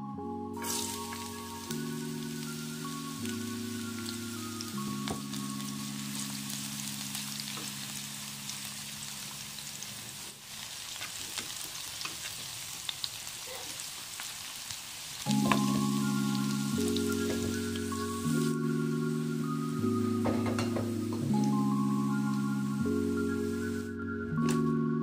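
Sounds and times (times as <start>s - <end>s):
soft background music: 0.0s - 9.6s, 15.3s - 25.0s
food sizzling in hot oil: 0.6s - 23.9s.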